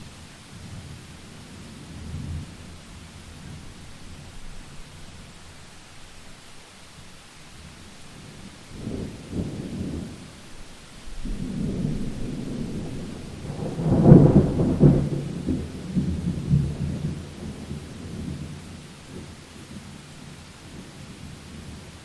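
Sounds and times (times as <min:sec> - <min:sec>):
rain falling: 0:00.0 - 0:22.0
thunder rumbling: 0:08.2 - 0:19.4.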